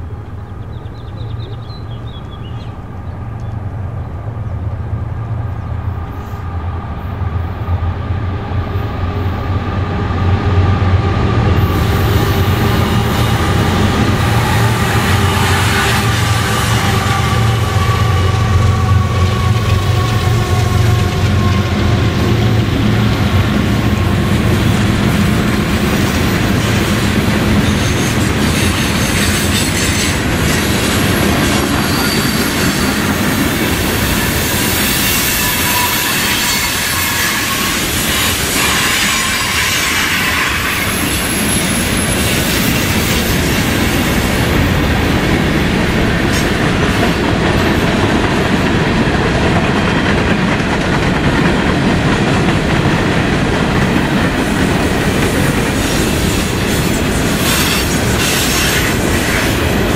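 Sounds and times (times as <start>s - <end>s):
freight train wheels on rails: 0.0s - 59.9s
high wheel squeals: 27.6s - 43.0s.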